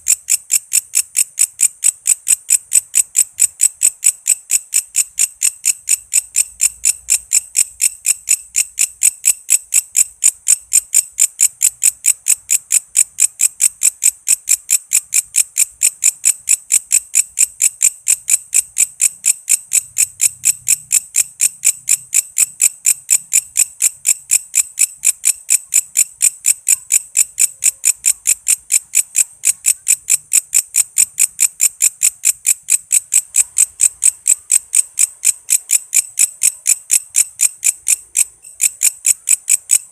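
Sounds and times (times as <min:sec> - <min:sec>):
insect chirping: 0:22.1 - 0:39.8.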